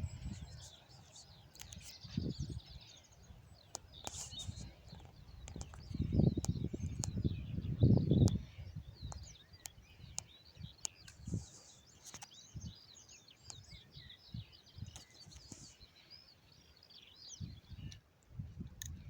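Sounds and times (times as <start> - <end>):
small birds chirping: 0.0 - 19.0
sharp clicks: 1.5 - 2.0, 3.7 - 7.2.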